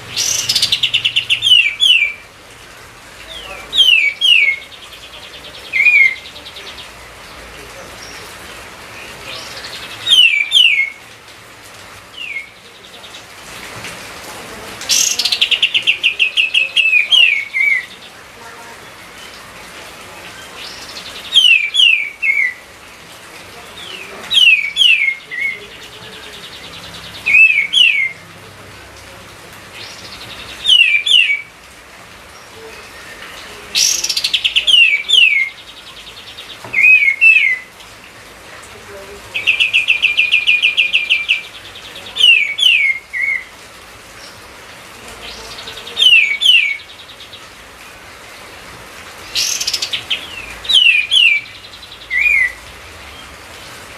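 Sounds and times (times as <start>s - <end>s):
bird whistling down-slurred phrases: 3.4s - 6.9s, 12.2s - 12.6s, 27.3s - 28.2s.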